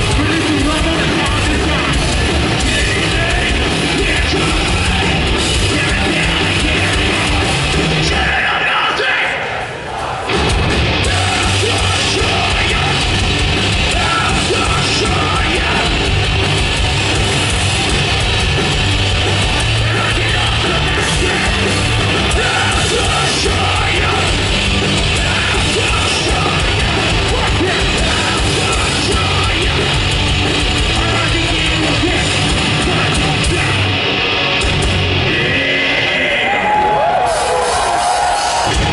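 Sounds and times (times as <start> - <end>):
live metal band playing: 0.0 - 38.9
shouted vocals: 2.8 - 13.1, 13.8 - 16.0, 19.6 - 24.4, 35.3 - 38.9.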